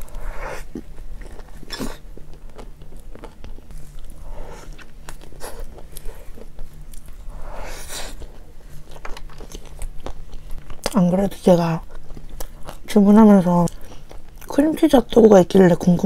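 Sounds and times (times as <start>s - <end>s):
person chewing: 0.0s - 11.0s, 11.8s - 12.9s, 13.6s - 14.5s.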